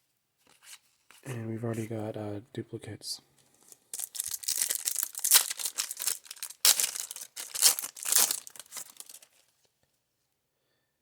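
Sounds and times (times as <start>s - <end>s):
wrapper crinkling and tearing: 3.6s - 9.5s.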